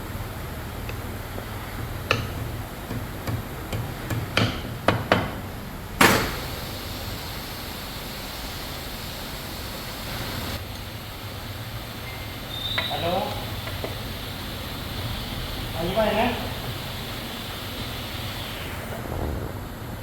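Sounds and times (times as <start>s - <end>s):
low factory hum: 0.0s - 20.0s
tools knocking and clicking: 2.1s - 5.4s.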